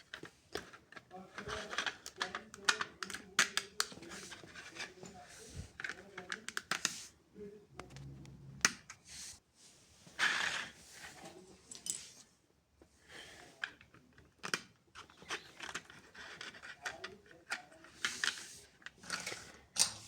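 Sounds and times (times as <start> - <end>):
plastic bricks clicking together: 1.4 - 4.0, 19.0 - 20.0.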